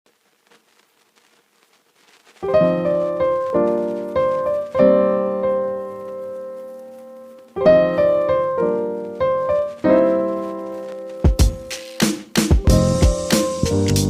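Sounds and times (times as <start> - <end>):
piano notes struck: 7.6 - 14.0.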